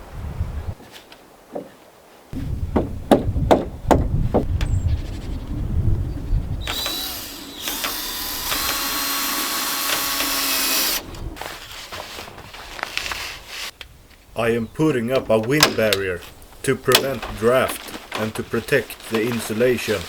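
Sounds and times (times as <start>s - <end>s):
sharp knocks: 2.7s - 4.7s
power tool motor whine: 6.6s - 11.2s.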